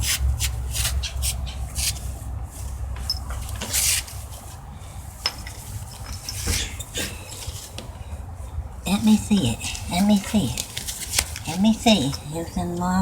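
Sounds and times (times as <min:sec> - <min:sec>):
cat licking and rubbing: 0:00.0 - 0:04.7, 0:08.5 - 0:13.0.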